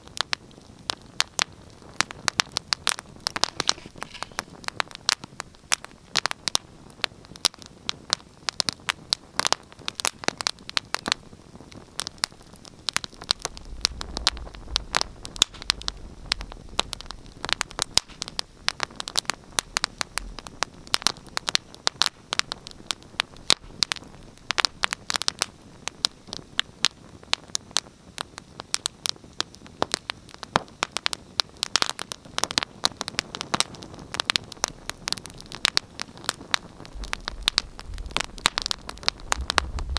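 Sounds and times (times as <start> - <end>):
wood fire crackling: 0.0 - 39.9
faint low rumble: 12.3 - 21.4, 36.5 - 39.9.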